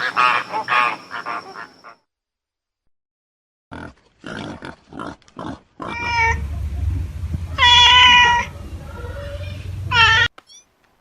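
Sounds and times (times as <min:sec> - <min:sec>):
pitched animal call: 0:05.8 - 0:10.3
low steady rumble: 0:05.9 - 0:10.3.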